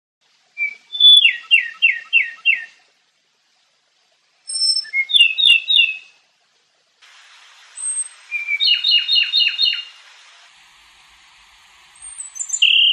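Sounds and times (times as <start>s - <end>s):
songbird singing: 0.5s - 2.8s, 4.4s - 6.2s, 7.5s - 12.9s.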